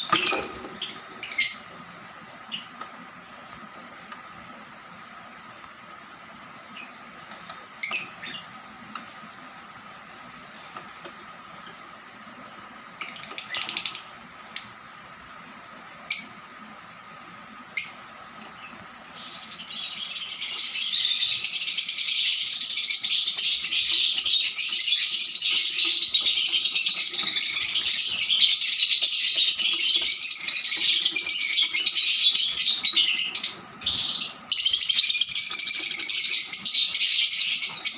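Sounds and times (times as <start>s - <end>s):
lovebirds chirping and chattering: 0.0s - 5.6s, 6.4s - 14.8s, 16.0s - 16.7s, 17.4s - 37.9s.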